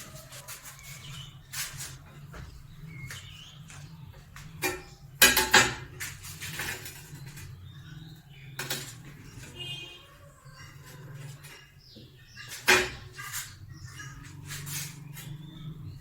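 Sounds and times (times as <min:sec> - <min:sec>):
hard objects clattering: 0:00.0 - 0:09.8.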